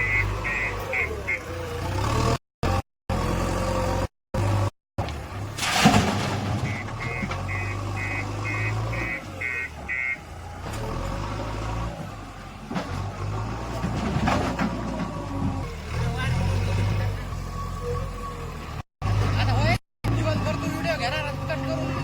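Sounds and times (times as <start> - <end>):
heavy diesel machinery drone: 0.0 - 4.7, 6.7 - 13.7
loud crash: 5.6 - 7.2.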